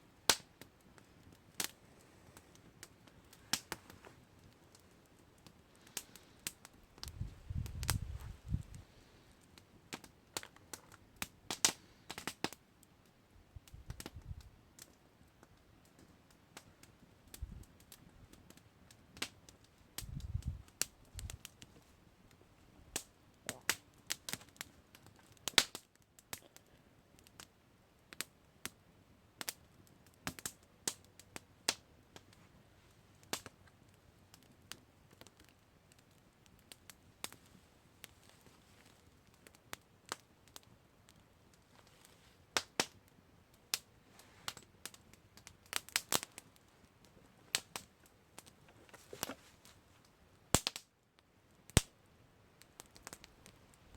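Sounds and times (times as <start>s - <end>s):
faint hiss: 0.0s - 10.0s
campfire crackling: 0.0s - 53.9s.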